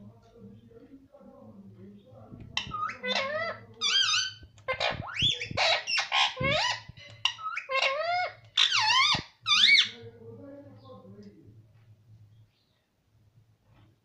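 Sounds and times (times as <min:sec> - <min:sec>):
parrot chirping and whistling: 0:02.6 - 0:10.0.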